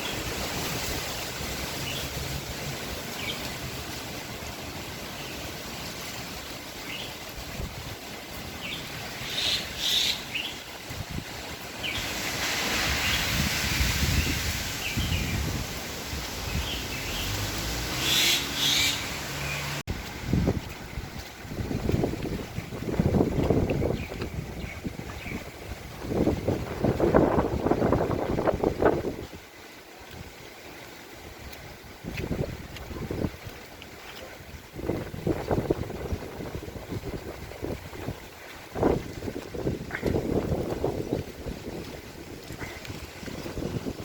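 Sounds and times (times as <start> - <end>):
wind rumbling on microphone: 0.0 - 44.0
small birds chirping: 16.5 - 19.8.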